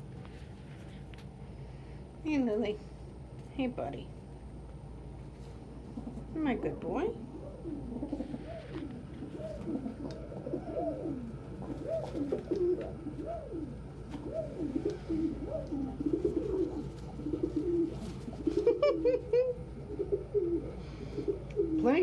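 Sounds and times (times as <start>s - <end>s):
pigeons cooing: 5.8s - 22.0s.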